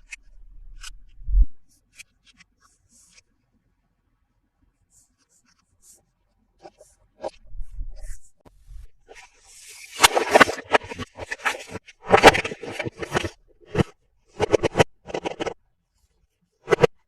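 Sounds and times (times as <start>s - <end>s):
plastic scrape: 9.0s - 15.6s, 16.6s - 17.0s
plastic toys and packaging handled: 9.1s - 15.6s
sharp clicks and knocks: 10.0s - 15.6s.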